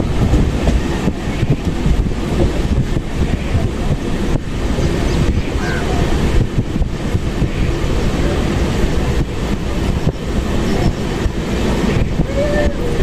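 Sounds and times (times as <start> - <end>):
train rumbling on track: 0.0 - 13.0.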